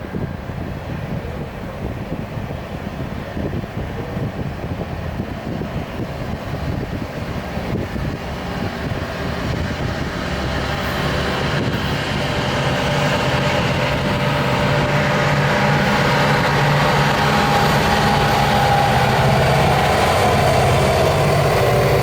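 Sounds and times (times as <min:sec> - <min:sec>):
diesel locomotive engine: 0:00.0 - 0:22.0
steady whine: 0:06.6 - 0:22.0.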